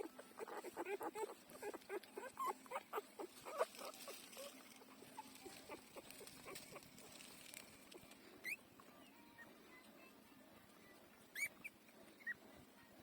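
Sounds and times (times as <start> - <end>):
puppies squeaking and whimpering: 0.0 - 6.9, 8.4 - 8.6, 11.3 - 12.4.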